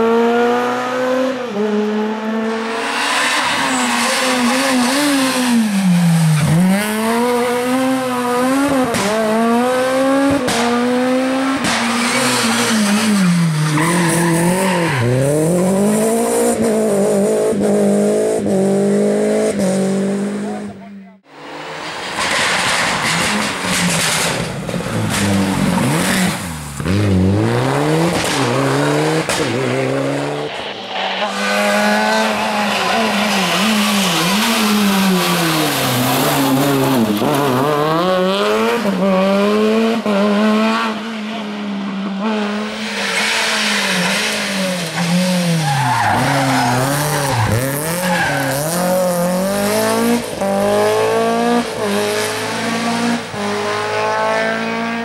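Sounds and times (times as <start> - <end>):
rally car engine revving: 0.0 - 55.0
tyres squealing and skidding: 2.6 - 7.8, 11.8 - 15.9, 28.4 - 37.7, 42.6 - 49.3.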